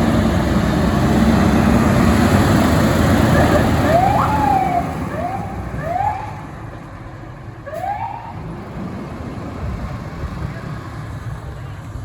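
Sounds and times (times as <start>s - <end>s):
truck rumble: 0.0s - 12.0s
fire engine siren whoops: 3.2s - 6.4s, 7.6s - 8.5s.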